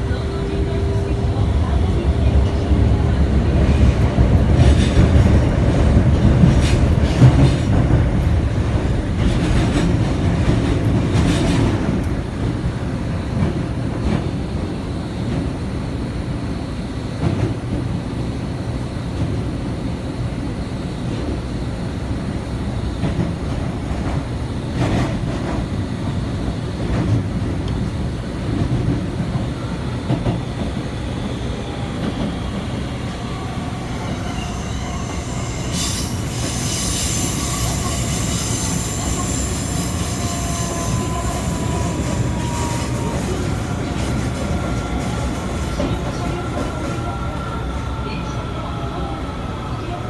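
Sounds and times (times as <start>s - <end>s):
rumble of train wheels on rail: 0.0s - 50.0s
high hissing wheel squeal: 32.3s - 45.6s.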